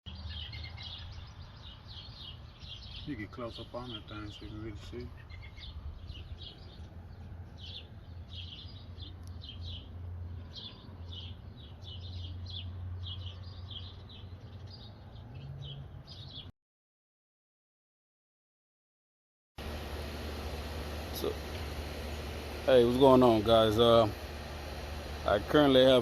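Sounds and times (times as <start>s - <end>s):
small birds chirping: 0.1s - 16.5s, 19.7s - 26.0s
steady low hum: 19.6s - 26.0s.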